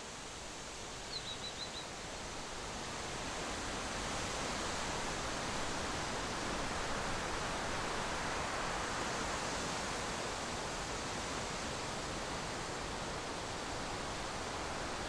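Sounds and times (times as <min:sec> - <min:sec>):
bird chirping: 0:01.1 - 0:01.9.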